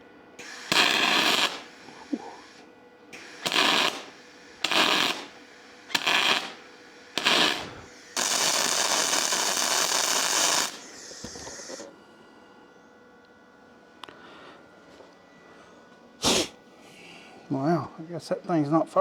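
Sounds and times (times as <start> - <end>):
welding arc crackling and hissing: 0.4 - 2.6, 3.2 - 11.9.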